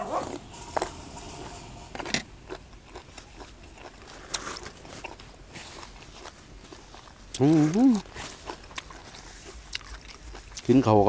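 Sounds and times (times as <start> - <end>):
chewing with mouth clicks: 2.5 - 10.9.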